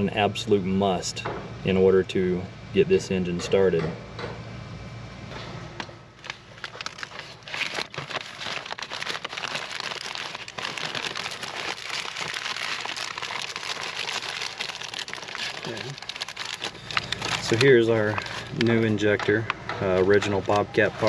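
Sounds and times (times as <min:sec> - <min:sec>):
packaging crinkling: 0:06.2 - 0:19.2.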